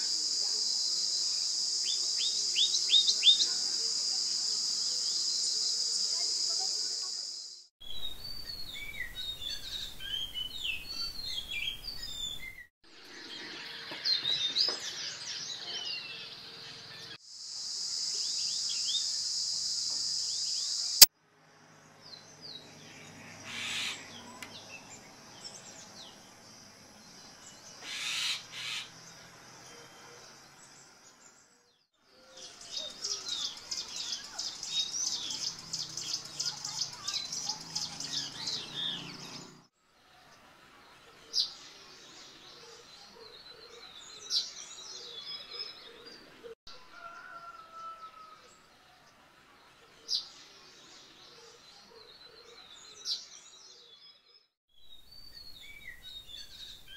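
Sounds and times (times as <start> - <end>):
wild birds chirping and calling: 22.8 - 26.2, 27.4 - 30.4, 32.2 - 39.7.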